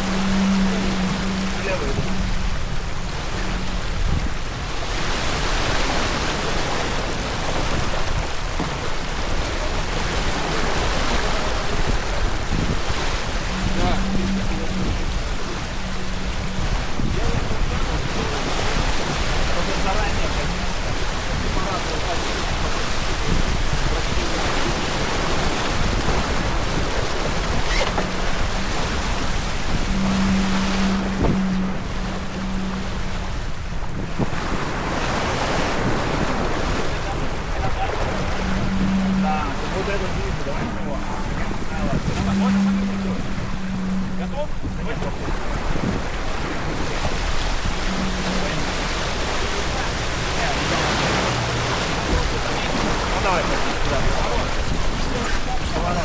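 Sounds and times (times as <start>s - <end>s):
steady low hum: 0.0s - 56.0s
water rushing along boat hull: 0.0s - 56.0s
wind noise on microphone: 0.0s - 56.0s.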